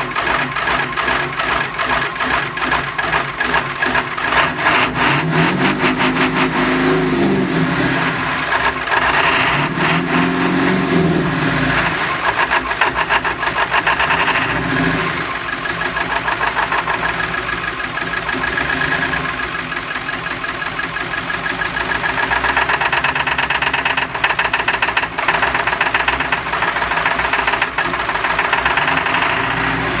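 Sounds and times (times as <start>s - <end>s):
truck engine clattering: 0.0s - 30.0s.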